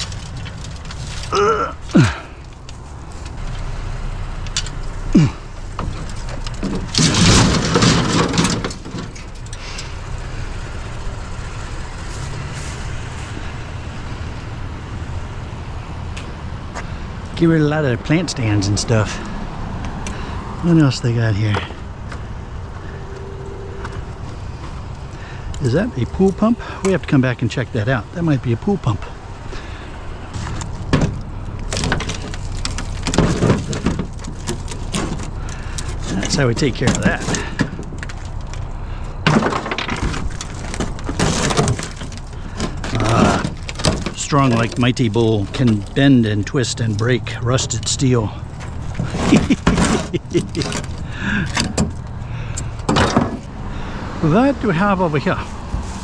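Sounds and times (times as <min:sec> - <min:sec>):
loud clatter: 0:00.0 - 0:03.6, 0:04.5 - 0:13.4, 0:30.3 - 0:52.2
low vehicle engine rumble: 0:00.0 - 0:56.0
steady low hum: 0:21.8 - 0:28.2.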